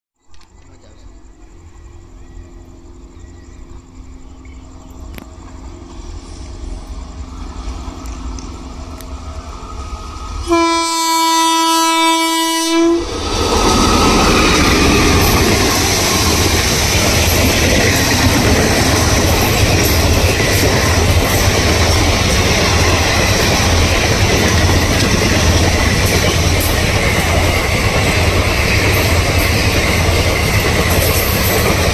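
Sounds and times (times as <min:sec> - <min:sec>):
wheels rushing on rails: 0:00.3 - 0:31.9
train rumble approaching: 0:00.4 - 0:31.9
locomotive horn blast: 0:10.4 - 0:13.1
clickety-clack of coaches: 0:15.2 - 0:31.9.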